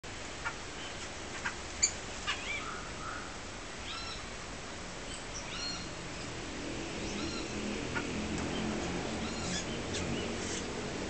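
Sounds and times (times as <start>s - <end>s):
squeaky bird calls: 3.9s - 4.2s.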